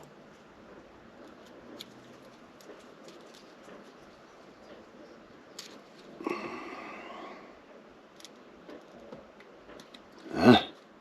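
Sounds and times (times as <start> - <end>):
faint handling noises: 0.0 - 6.9, 7.5 - 11.0
man grunting exhale: 6.2 - 7.5.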